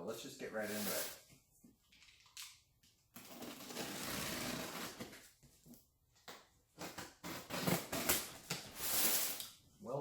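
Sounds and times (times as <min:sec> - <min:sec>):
cardboard tearing: 0:03.2 - 0:05.2, 0:06.8 - 0:09.5.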